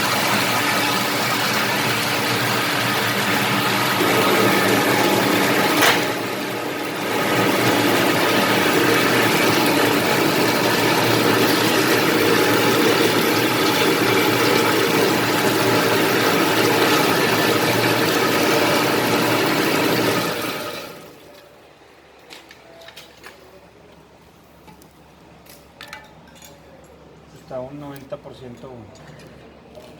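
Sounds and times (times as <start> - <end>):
peeling machine running: 0.0 - 21.5.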